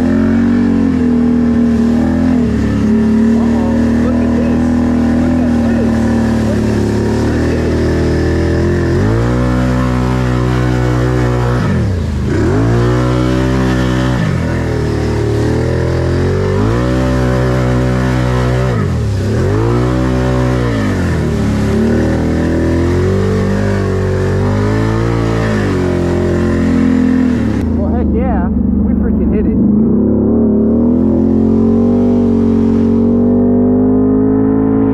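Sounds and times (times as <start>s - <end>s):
atv engine revving: 0.0s - 34.9s.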